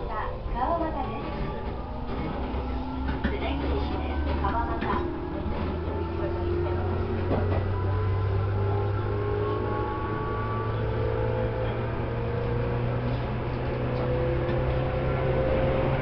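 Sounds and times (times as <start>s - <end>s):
electric train motors whining: 0.8s - 16.0s.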